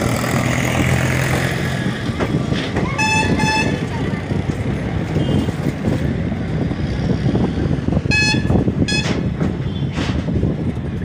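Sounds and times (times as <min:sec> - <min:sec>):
wheels rumbling on rails: 0:00.0 - 0:11.0
high train horn toot: 0:02.9 - 0:03.9, 0:08.1 - 0:09.8.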